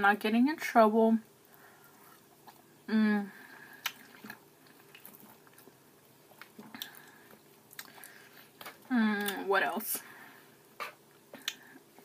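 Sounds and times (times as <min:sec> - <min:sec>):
soft chewing: 0:01.2 - 0:09.4, 0:10.6 - 0:12.0.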